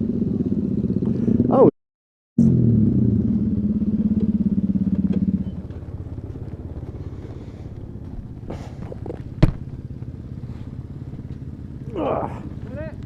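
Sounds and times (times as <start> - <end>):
motorcycle engine running: 0.0 - 1.7, 2.4 - 13.0
sharp knock: 9.4 - 9.6.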